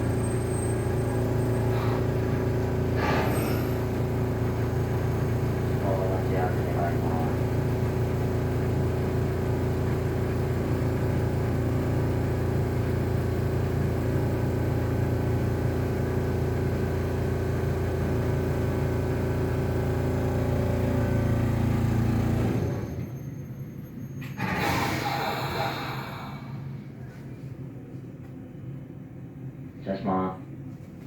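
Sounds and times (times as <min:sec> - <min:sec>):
streetcar rumble with motor hum: 0:00.0 - 0:31.0
sudden loud noise: 0:24.4 - 0:26.7.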